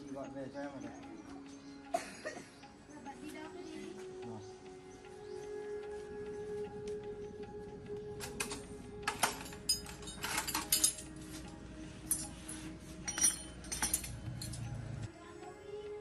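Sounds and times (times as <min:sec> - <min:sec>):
quiet background music: 0:00.0 - 0:16.0
metal tools clinking and clanking: 0:08.2 - 0:15.1.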